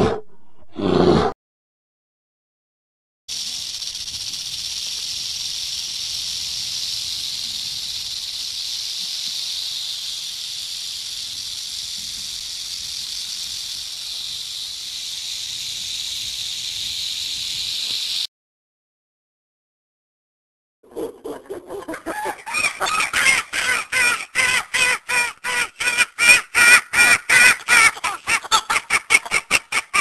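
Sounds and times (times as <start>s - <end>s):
rattlesnake tail rattling: 3.3s - 18.3s.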